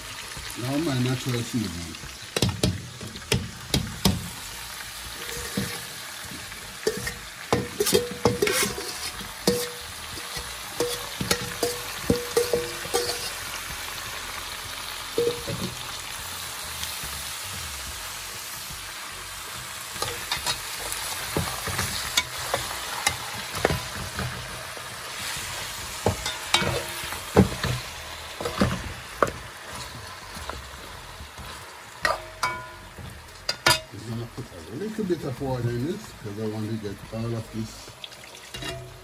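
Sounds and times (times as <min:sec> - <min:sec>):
meat and vegetables sizzling: 0:00.0 - 0:39.0
metal spoon scraping pot: 0:05.1 - 0:06.0, 0:06.8 - 0:13.4, 0:38.5 - 0:39.0.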